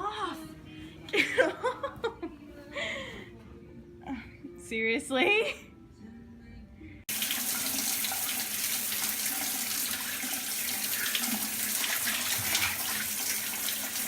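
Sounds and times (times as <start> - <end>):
shower spraying water: 7.1 - 14.0.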